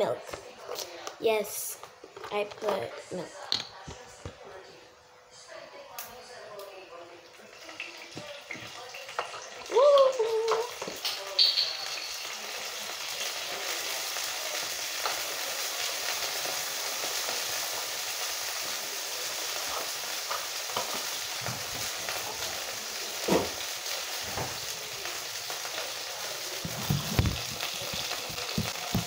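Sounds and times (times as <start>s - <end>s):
food frying in oil: 7.2s - 29.0s.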